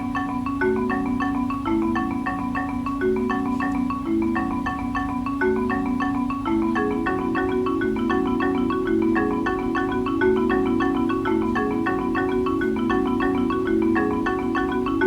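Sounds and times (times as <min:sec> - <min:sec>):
upbeat plucked mallet music: 0:00.0 - 0:15.0.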